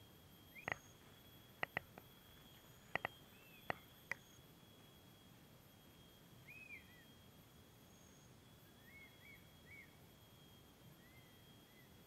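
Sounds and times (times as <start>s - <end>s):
faint steady high tone: 0.0s - 12.0s
whistled bird calls: 0.5s - 1.0s, 3.0s - 3.8s, 6.4s - 7.2s, 8.6s - 10.0s, 11.0s - 12.0s.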